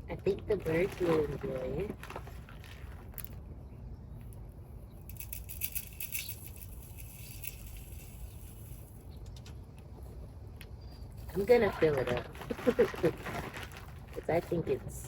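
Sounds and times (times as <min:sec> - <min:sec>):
low steady rumble: 0:00.0 - 0:15.0
metal bird feeder rattling: 0:05.1 - 0:09.0.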